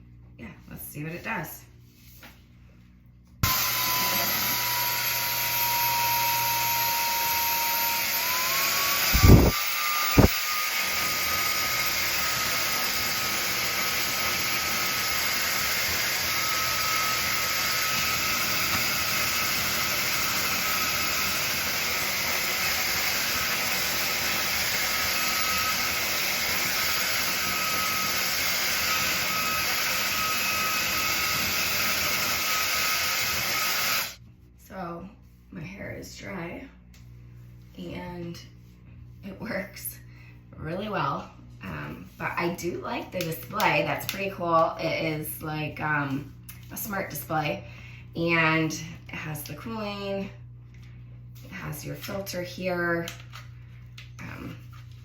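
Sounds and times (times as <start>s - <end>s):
hair dryer blowing with whine: 3.4s - 34.2s.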